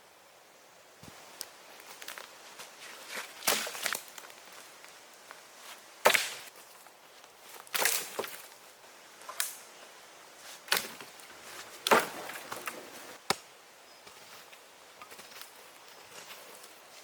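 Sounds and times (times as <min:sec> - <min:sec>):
sharp knocks with crunch: 0:06.0 - 0:06.6, 0:11.8 - 0:14.2.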